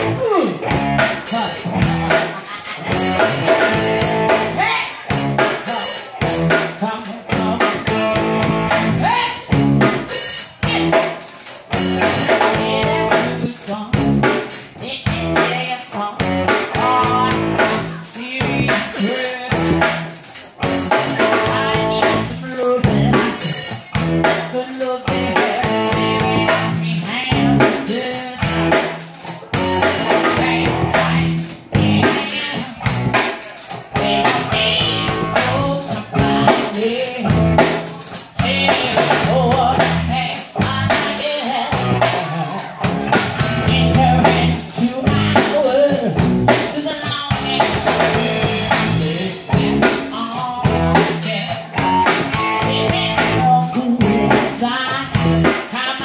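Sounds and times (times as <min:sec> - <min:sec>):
band music: 0:00.0 - 0:56.0.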